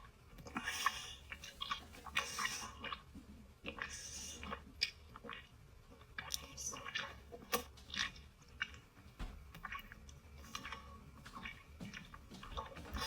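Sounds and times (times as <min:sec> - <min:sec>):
wet slurping mouth sounds: 0:00.4 - 0:08.9, 0:09.5 - 0:13.0.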